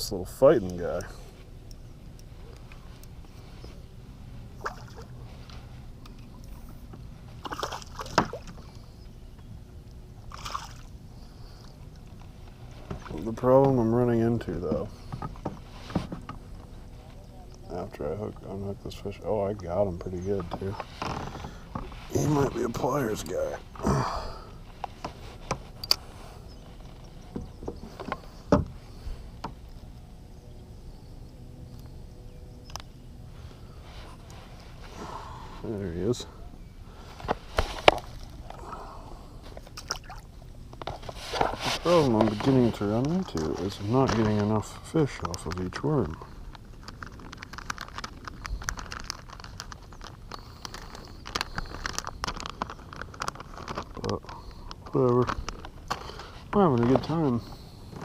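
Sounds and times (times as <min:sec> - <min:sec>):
clicks and knocks in a kayak: 0:04.6 - 0:09.5, 0:11.6 - 0:16.7, 0:19.8 - 0:23.9, 0:24.7 - 0:28.8, 0:37.1 - 0:38.6, 0:39.4 - 0:58.0.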